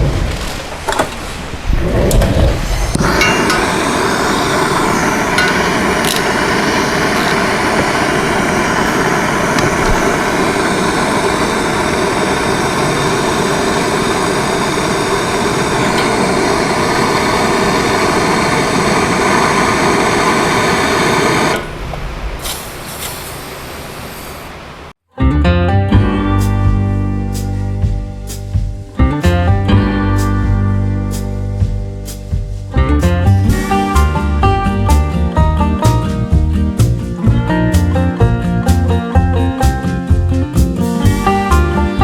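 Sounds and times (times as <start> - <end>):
power tool whining: 2.6 - 22.1.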